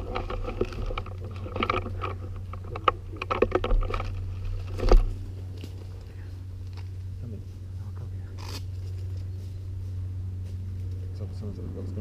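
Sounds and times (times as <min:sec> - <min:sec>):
clicks and rustling: 0:00.0 - 0:07.1
steady low rumble: 0:00.0 - 0:12.0.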